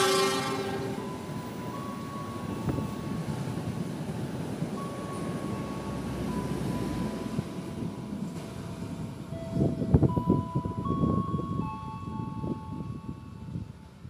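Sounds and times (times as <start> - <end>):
high squealing tones: 0.0 - 1.2
train wheels rumbling over track joints: 0.0 - 11.6.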